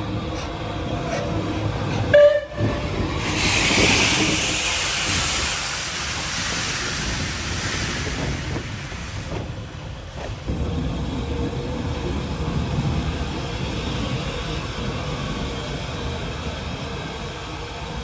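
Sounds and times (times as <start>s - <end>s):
steam locomotive whistle: 2.1s - 4.6s
steam hissing: 2.7s - 11.5s.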